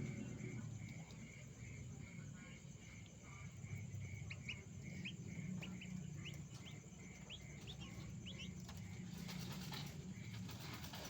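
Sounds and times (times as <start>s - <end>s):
bird chirping: 4.2s - 9.9s.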